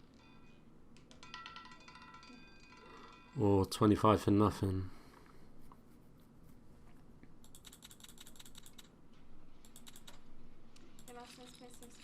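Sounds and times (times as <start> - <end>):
rapid computer clicking: 7.4 - 9.0, 9.6 - 12.0.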